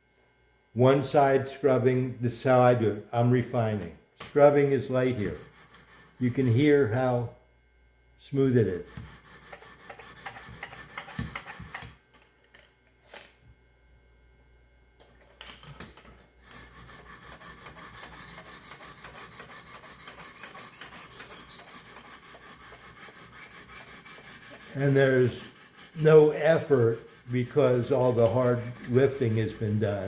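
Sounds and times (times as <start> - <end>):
sharpening stone scrubbing knife: 5.2 - 6.6, 16.5 - 30.0.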